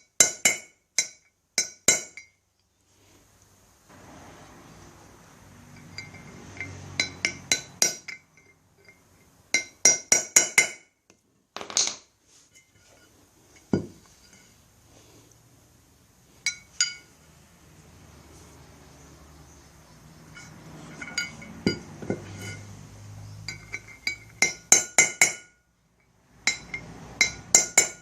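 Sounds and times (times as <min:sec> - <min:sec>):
scrape of metal: 0:05.6 - 0:09.3, 0:12.3 - 0:15.3, 0:20.2 - 0:24.4.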